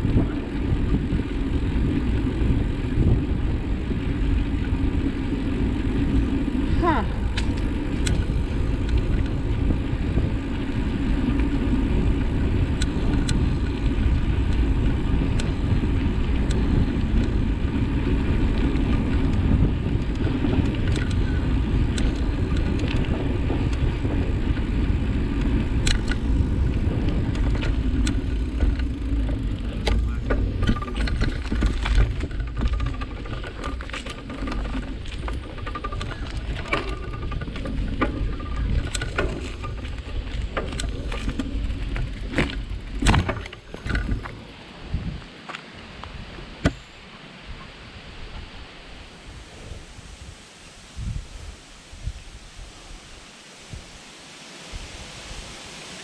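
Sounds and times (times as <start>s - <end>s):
bike rattling and clicking: 0.0s - 44.7s
steady low rumble: 0.0s - 45.3s.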